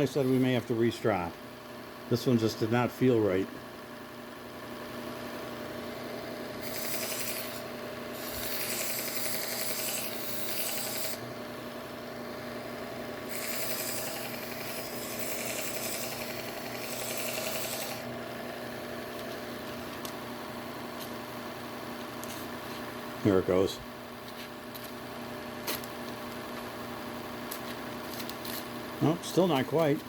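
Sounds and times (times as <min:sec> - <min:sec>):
belt grinder humming: 0:06.6 - 0:11.2, 0:13.3 - 0:18.2.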